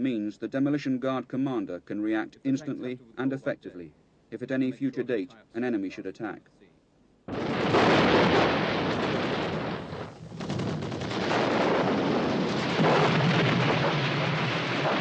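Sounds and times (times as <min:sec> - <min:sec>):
explosions: 0:07.3 - 0:15.0
gunfire: 0:07.3 - 0:15.0.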